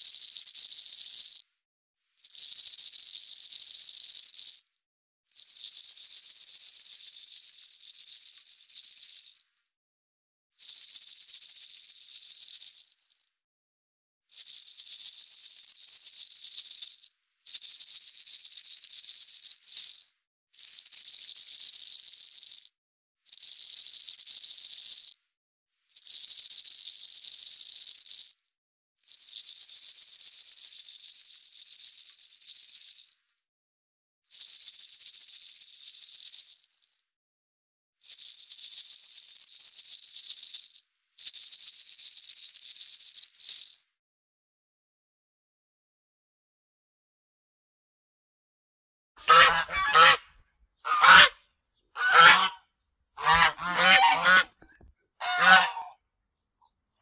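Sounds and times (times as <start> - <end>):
high-pitched hissing shaking noise: 0.0 - 1.4, 2.2 - 4.7, 5.3 - 9.6, 10.6 - 13.3, 14.3 - 25.2, 25.9 - 28.4, 29.0 - 33.3, 34.3 - 37.0, 38.0 - 43.9.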